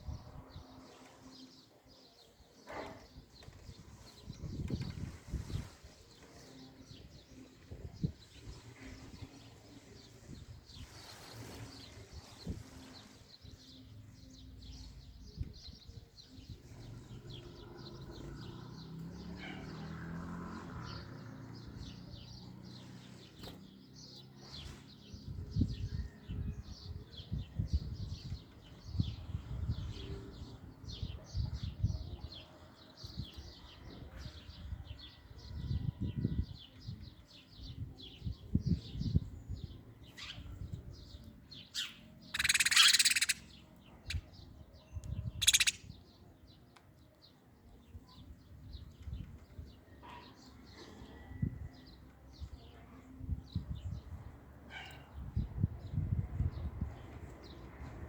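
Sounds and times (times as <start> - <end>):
wild birds chirping: 0.4 - 25.2, 36.6 - 53.2.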